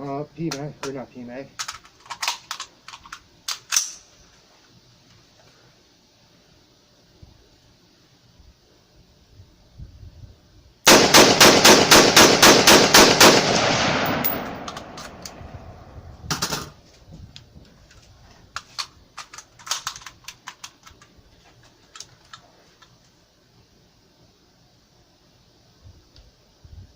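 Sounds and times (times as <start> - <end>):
rapid rifle shots: 10.9 - 15.3
handling clicks: 14.0 - 15.4, 17.4 - 23.0.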